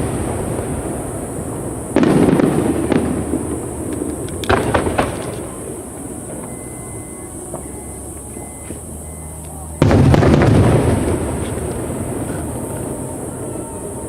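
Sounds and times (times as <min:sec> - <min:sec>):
fireworks booming: 0:00.0 - 0:14.0
sharp crackles of fireworks: 0:00.0 - 0:14.0.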